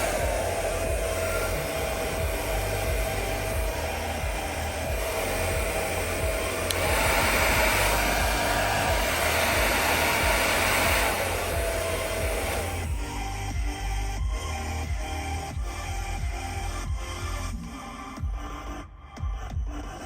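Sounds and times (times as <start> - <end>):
hair dryer running: 0.0 - 18.4.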